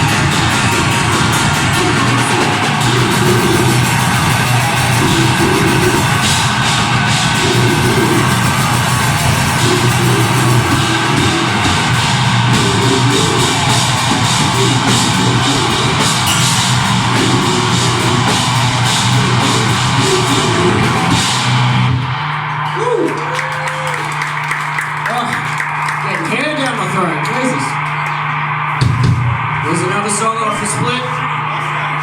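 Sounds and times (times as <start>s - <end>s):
growled vocals: 0.0s - 21.8s
metal band playing live: 0.0s - 22.7s.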